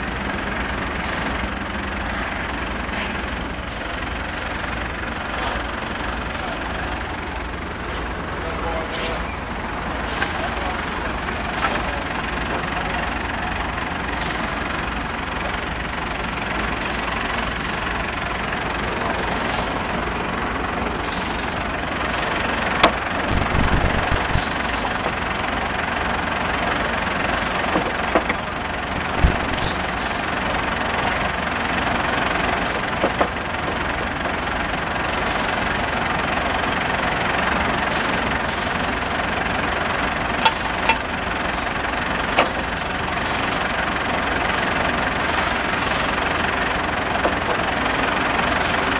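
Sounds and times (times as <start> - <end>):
drilling rig running: 0.1 - 48.9.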